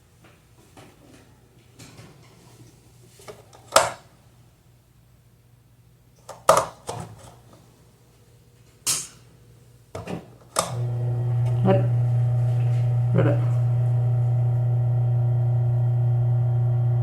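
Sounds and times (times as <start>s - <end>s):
fan motor humming: 10.7s - 17.0s.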